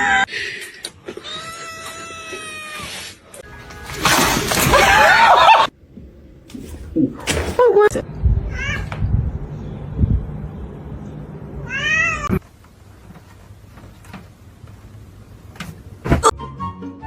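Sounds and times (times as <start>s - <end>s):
low rumble: 7.9s - 12.4s
cat meowing: 8.5s - 8.9s, 11.6s - 12.4s.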